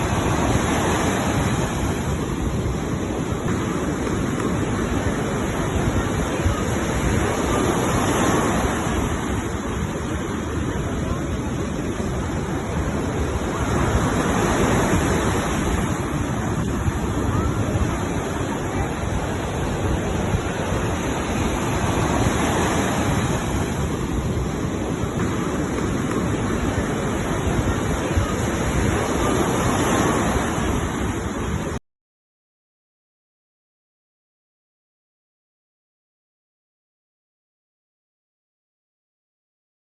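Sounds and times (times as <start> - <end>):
sea waves washing: 0.0 - 31.8
wind on microphone: 0.0 - 31.8.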